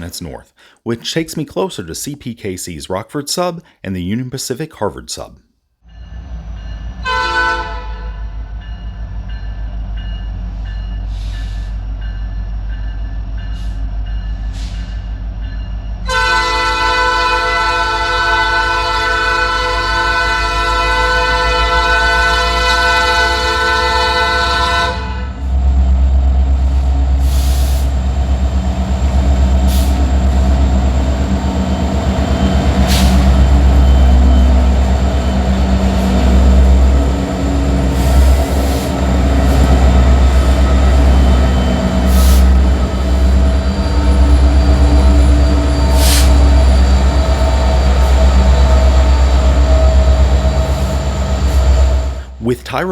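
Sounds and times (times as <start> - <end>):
diesel locomotives rumbling: 5.9 - 52.9
air horn chord blast: 7.0 - 8.1, 16.1 - 25.4.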